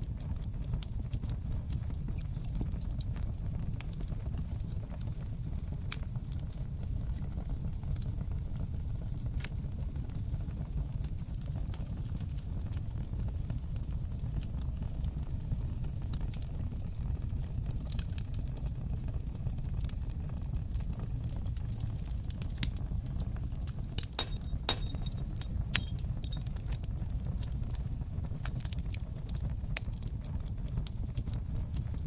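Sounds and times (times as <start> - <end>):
fire crackling and popping: 0.0 - 32.0
low rumble of flames: 0.0 - 32.0.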